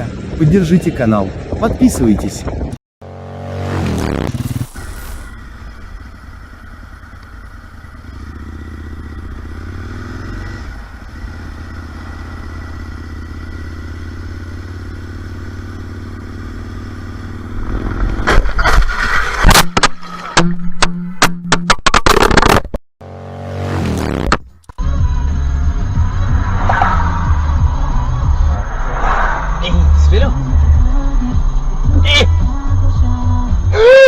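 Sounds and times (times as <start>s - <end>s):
motorcycle engine running: 0.0s - 21.2s, 23.0s - 33.8s
knocks clatter and scraping: 17.8s - 20.4s.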